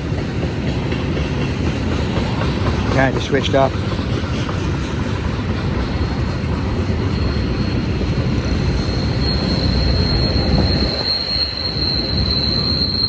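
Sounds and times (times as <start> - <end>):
freight train rumbling past: 0.0 - 13.0
high-pitched wheel squeal: 5.7 - 13.0.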